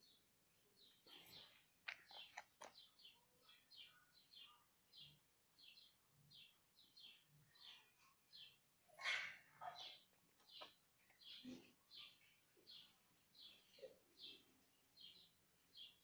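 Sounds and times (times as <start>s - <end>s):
faint bird chirping: 0.0s - 16.0s.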